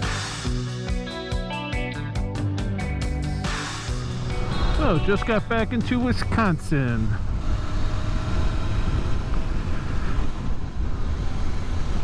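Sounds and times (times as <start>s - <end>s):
motorcycle engine drone: 3.4s - 12.0s
road rumble: 3.5s - 12.0s
wind rush: 3.9s - 12.0s.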